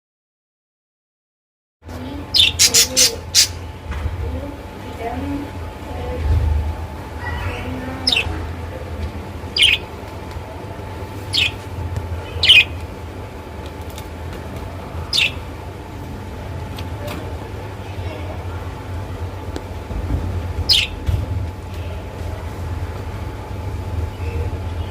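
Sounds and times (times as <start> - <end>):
steady low hum: 1.8 - 24.9
parrots squawking: 2.3 - 3.7, 7.2 - 8.4, 9.5 - 9.9, 11.3 - 11.6, 12.3 - 12.8, 15.1 - 15.5, 20.7 - 21.0.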